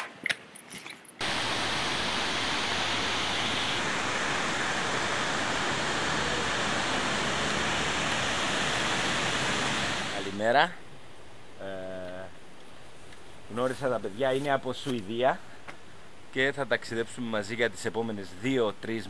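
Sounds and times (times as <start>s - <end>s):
waterfall rushing: 1.2s - 10.4s.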